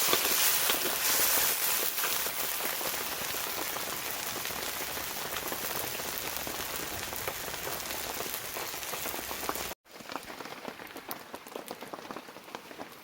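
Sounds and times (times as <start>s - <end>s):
heavy rain falling: 2.5s - 12.2s.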